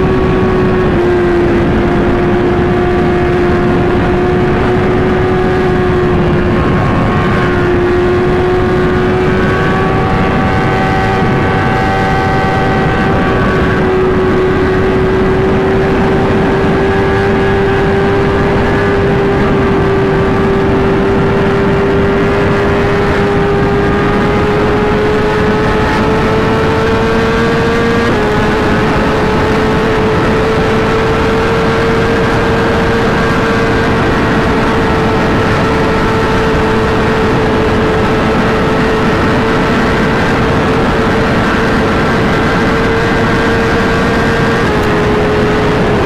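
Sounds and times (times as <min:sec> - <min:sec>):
motorcycle engine at high revs: 0:00.0 - 0:46.0.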